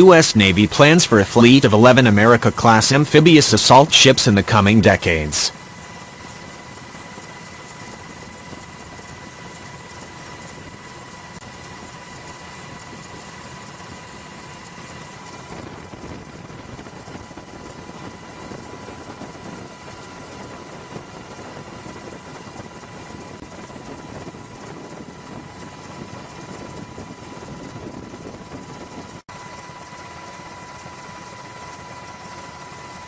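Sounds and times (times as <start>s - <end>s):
machinery rumble: 0.0s - 5.5s
faint constant whine: 0.0s - 33.0s.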